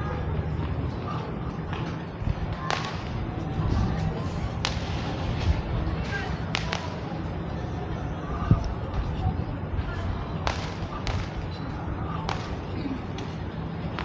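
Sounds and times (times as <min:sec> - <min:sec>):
sharp cracks: 0:02.6 - 0:03.2, 0:06.5 - 0:07.0, 0:10.4 - 0:11.4.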